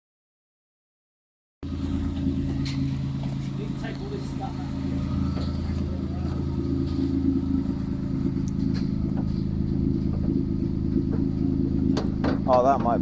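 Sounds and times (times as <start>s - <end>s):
car engine idling: 1.6s - 13.0s.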